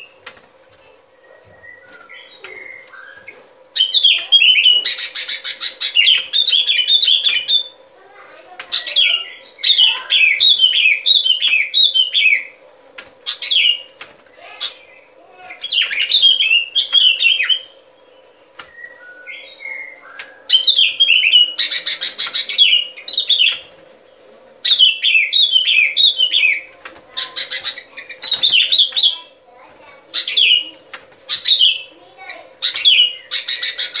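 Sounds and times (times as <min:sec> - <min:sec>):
faint steady hum: 0:00.0 - 0:34.0
bird whistled calls: 0:18.6 - 0:23.7, 0:24.6 - 0:26.7, 0:32.6 - 0:34.0.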